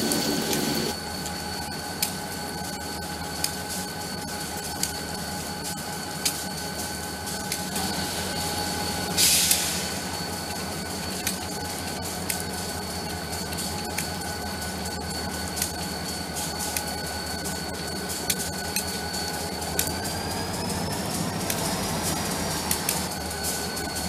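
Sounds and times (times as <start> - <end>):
wheels clicking: 0.0 - 1.0, 17.5 - 24.0
diesel locomotive engine rumble: 0.0 - 1.2, 7.1 - 24.0
thin steady whine: 0.0 - 24.0
hiss burst: 7.8 - 11.4.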